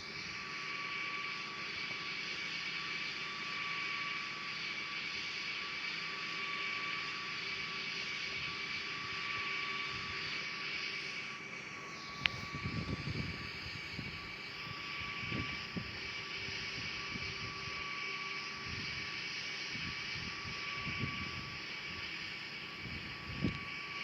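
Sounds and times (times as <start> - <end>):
distant jet engines whining: 0.0 - 24.0
wind buffeting microphone: 12.3 - 14.3, 15.0 - 17.5.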